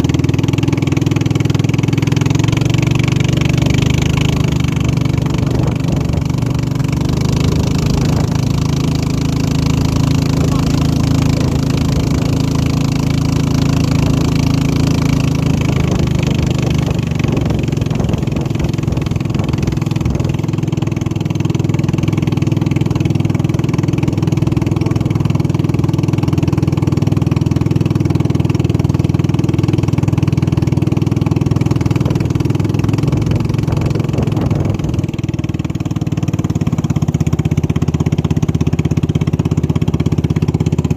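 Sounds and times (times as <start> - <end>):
racing boat engine running: 0.0 - 40.9.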